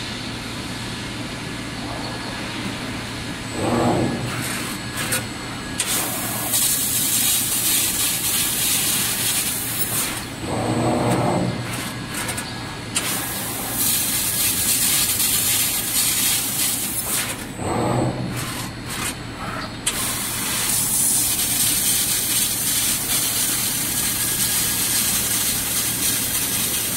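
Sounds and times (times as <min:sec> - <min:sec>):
machine drives humming: 0:00.0 - 0:26.9
loud gas hiss: 0:13.0 - 0:17.3, 0:19.9 - 0:26.9.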